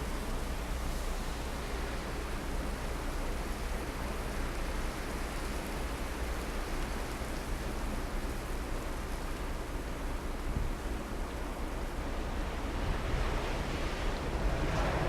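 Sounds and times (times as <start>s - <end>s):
blizzard wind blowing: 12.1s - 15.0s
wind buffeting microphone: 12.4s - 15.0s.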